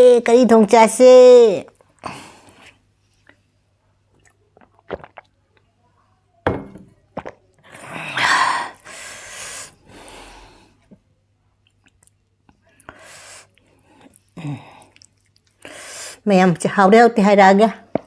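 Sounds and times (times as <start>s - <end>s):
knock: 6.5s - 6.9s
loud breath: 7.7s - 10.8s, 15.6s - 16.2s.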